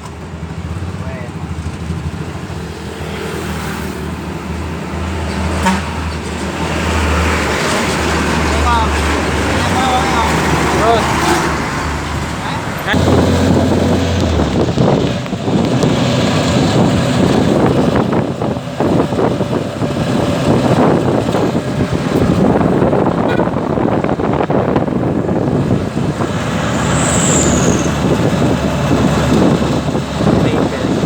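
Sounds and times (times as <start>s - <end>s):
motorcycle truck engine: 0.0s - 31.0s
high falling squeak: 26.7s - 28.2s.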